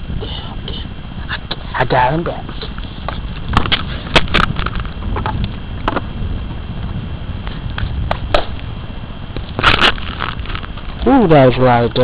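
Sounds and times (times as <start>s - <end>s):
low steady rumble: 0.0s - 12.0s
sharp clicks and crackles: 9.4s - 11.1s.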